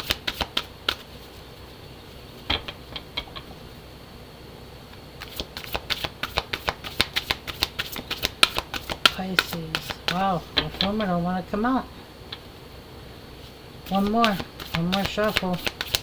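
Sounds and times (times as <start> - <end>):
cards being shuffled by hand: 0.0 - 1.4, 5.2 - 11.1, 13.4 - 16.0.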